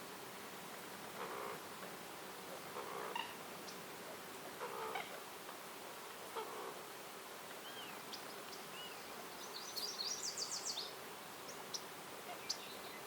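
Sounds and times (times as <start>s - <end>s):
faint outdoor hiss: 0.0s - 13.0s
songbirds whistling and trilling: 7.6s - 13.0s.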